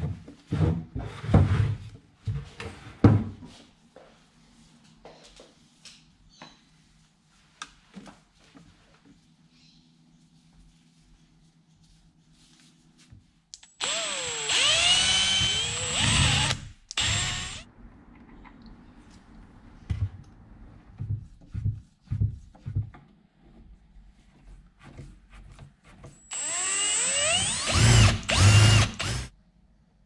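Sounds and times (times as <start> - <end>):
power drill whining: 13.7 - 17.6, 26.2 - 29.3.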